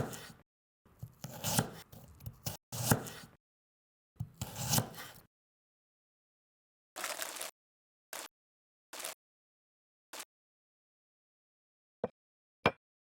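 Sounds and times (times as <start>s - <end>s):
knife chopping on cutting board: 0.0s - 0.4s, 1.0s - 3.4s, 4.2s - 5.3s.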